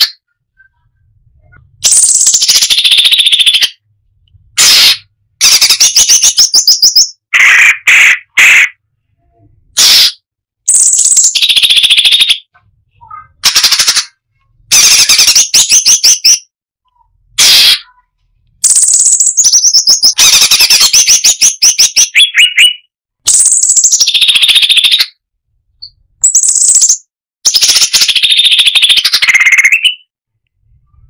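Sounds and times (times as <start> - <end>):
bulbul singing: 0.0 - 3.9, 4.6 - 7.2, 10.7 - 14.0, 18.6 - 25.2, 25.8 - 30.1.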